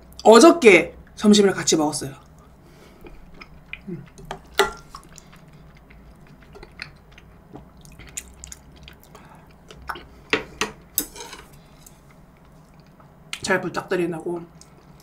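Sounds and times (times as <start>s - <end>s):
person chewing wetly: 2.2s - 10.6s, 11.8s - 13.4s.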